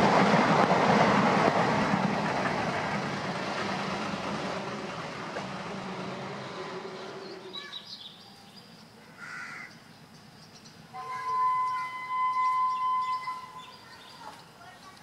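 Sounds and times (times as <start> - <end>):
passing train rumble: 0.0 - 9.0, 9.9 - 15.0
bird calling: 10.6 - 14.8.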